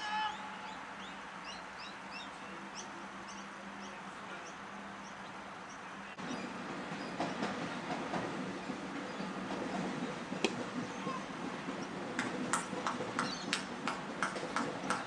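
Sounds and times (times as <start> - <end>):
steady outdoor background: 0.0 - 15.0
rough noise with sharp knocks: 7.0 - 15.0
small bird chirping: 13.2 - 13.6.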